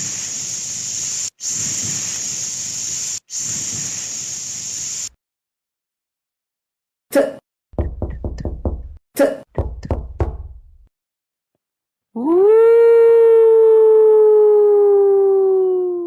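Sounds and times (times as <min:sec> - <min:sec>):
knocking: 0:07.8 - 0:10.9
long howl: 0:12.2 - 0:16.0.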